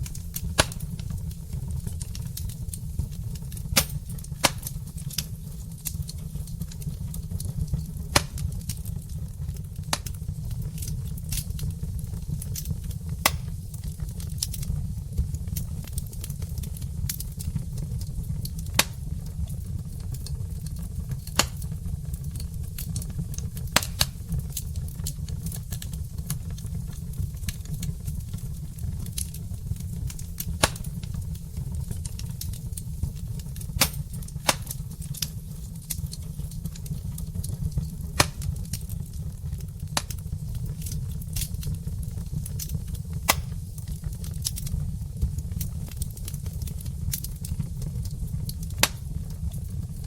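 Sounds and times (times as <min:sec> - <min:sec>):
fire rumbling: 0:00.0 - 0:50.0
logs crackling and popping: 0:00.0 - 0:50.0.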